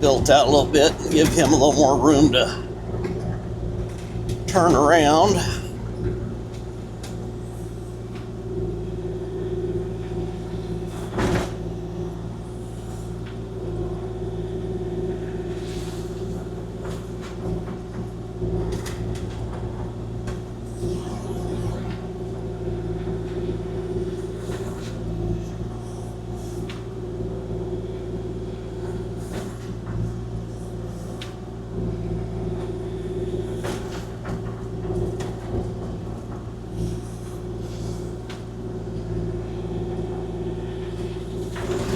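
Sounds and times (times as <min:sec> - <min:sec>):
excavator diesel engine running: 0:00.0 - 0:02.7.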